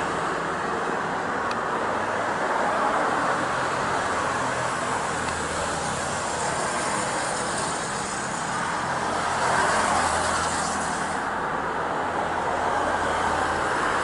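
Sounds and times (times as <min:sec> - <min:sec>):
helicopter turbine and rotor: 0:04.1 - 0:11.2.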